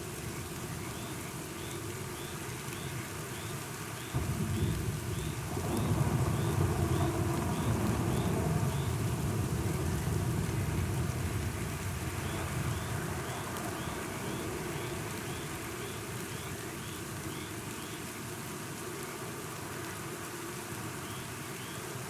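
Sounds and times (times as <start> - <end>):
steady rain falling: 0.0 - 22.0
thunder rolling: 4.2 - 15.4.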